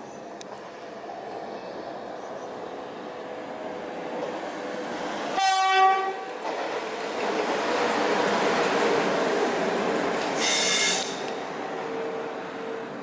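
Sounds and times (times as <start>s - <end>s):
train running noise: 0.0s - 13.0s
train horn blast: 5.3s - 6.3s, 10.4s - 11.3s.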